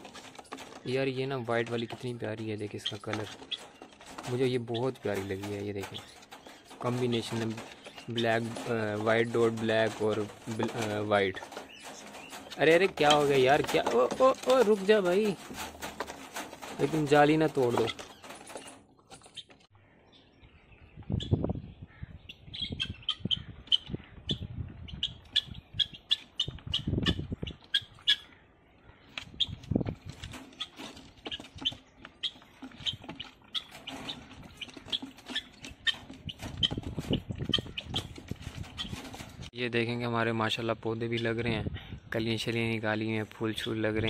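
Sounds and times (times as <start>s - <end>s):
wings flapping against cage: 0.0s - 19.4s, 29.3s - 39.5s
birds chirping: 0.0s - 44.0s.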